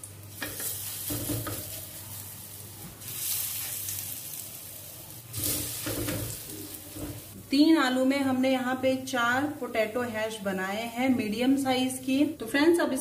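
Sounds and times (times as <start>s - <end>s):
potato patties sizzling in oil: 0.0s - 7.4s.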